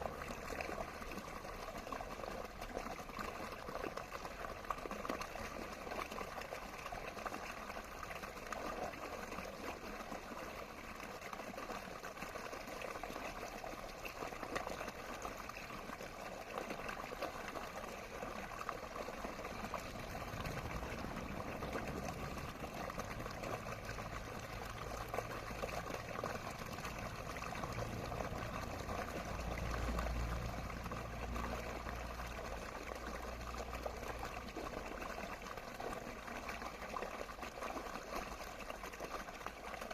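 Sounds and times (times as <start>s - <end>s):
water flowing and trickling: 0.0s - 39.9s
low rumble: 19.6s - 24.9s.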